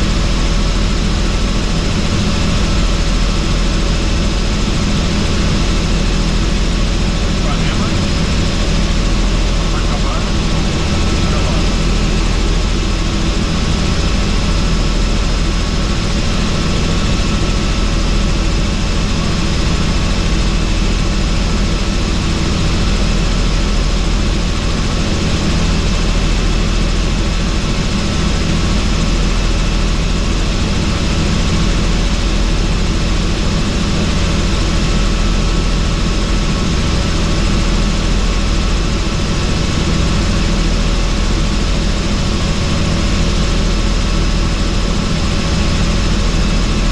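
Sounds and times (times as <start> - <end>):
helicopter rotor and engine drone: 0.0 - 46.9
thin steady whining tones: 0.1 - 23.3.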